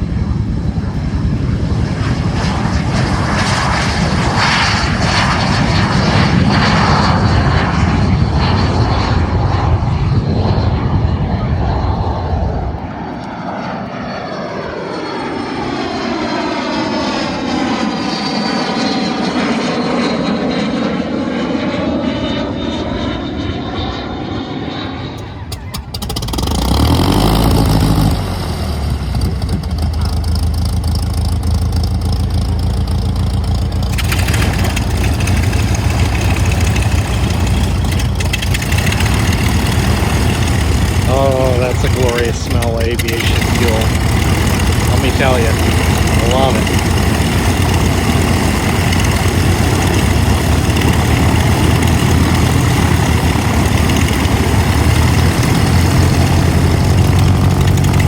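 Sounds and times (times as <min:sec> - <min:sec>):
piston aircraft engine revving: 0:00.0 - 0:58.0
propeller airplane droning: 0:00.0 - 0:58.0.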